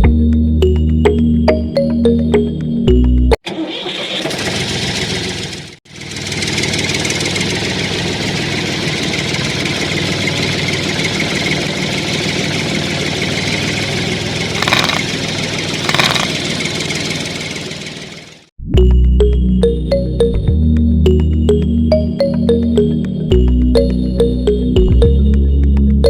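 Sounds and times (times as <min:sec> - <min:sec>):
small electric motor whining: 0:14.6 - 0:15.0, 0:15.8 - 0:16.3.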